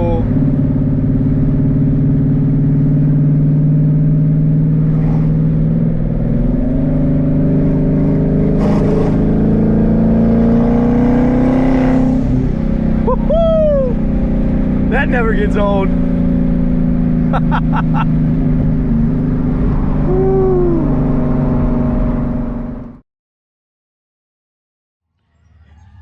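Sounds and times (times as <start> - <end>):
loud car engine revving: 0.0 - 23.0.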